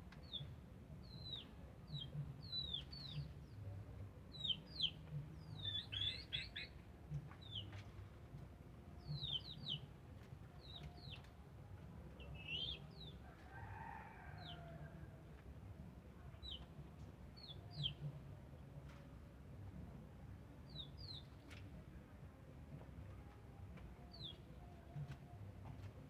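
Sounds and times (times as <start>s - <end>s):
distant rooster crowing: 13.4s - 15.2s.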